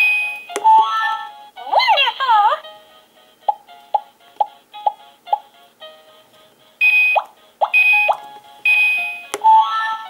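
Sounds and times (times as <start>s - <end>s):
toy tablet electronic beeps: 0.0s - 1.3s, 6.8s - 10.0s.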